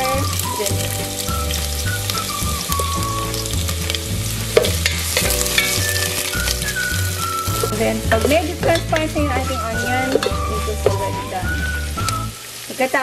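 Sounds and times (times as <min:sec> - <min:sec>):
wooden spatula stirring pot: 0:00.0 - 0:12.3
aromatics sizzling in oil: 0:00.0 - 0:13.0.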